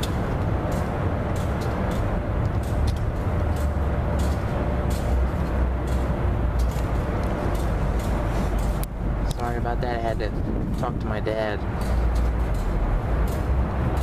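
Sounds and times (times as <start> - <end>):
freight train rumbling on trestle: 0.0 - 14.0.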